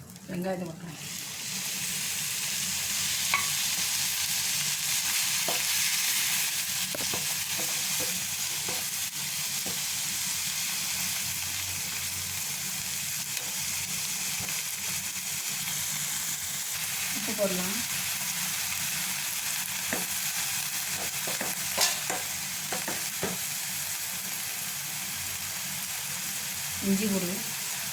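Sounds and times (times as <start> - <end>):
onions sizzling in a pan: 0.0 - 27.9
utensil tapping a pan: 20.9 - 23.4.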